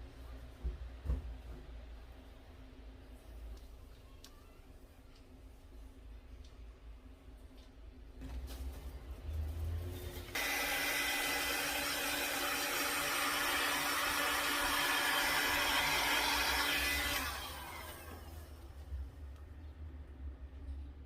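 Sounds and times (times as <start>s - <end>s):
faint motor whine: 0.0s - 20.9s
hot-air blower running: 10.2s - 18.9s.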